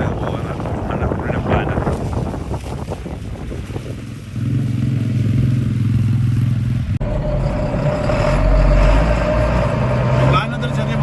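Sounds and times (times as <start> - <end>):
farm vehicle engine running: 4.1 - 11.0
steady engine whine: 4.4 - 11.0.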